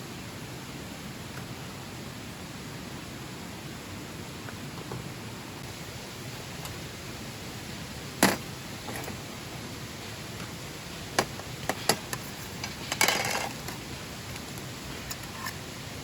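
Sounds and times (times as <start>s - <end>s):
steady hiss: 0.0s - 16.0s
knocks of objects being handled: 8.2s - 9.1s
scraping clatter: 11.6s - 13.8s.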